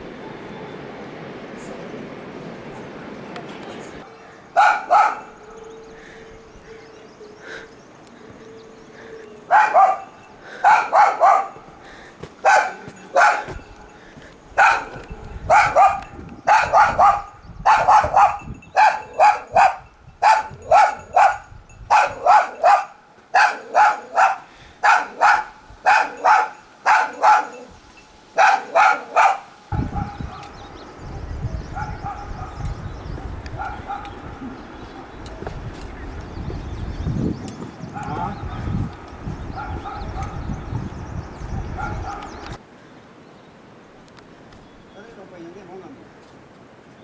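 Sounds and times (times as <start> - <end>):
dog barking: 4.1 - 5.8, 9.4 - 11.8, 12.4 - 27.7, 28.4 - 30.6, 31.7 - 35.5, 37.9 - 40.6, 41.5 - 42.4.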